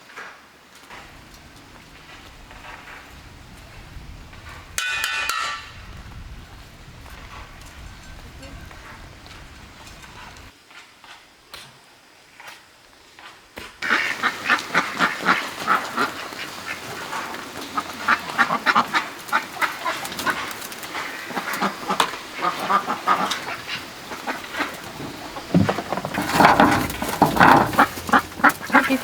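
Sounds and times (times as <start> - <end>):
ducks quacking: 0.9 - 5.9, 13.8 - 29.0.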